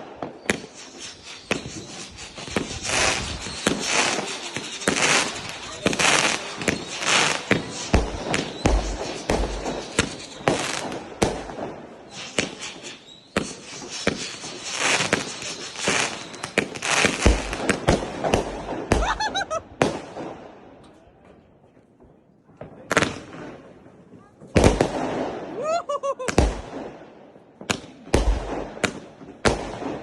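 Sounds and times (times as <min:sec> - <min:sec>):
wavering firework whistle: 0:00.0 - 0:11.0, 0:12.1 - 0:17.8
firework bangs and crackle: 0:00.0 - 0:30.0.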